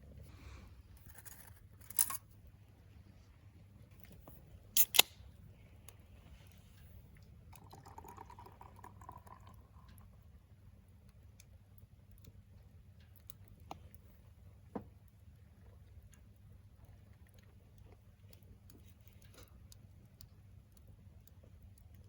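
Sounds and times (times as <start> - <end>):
soft hiss: 2.8 - 7.4.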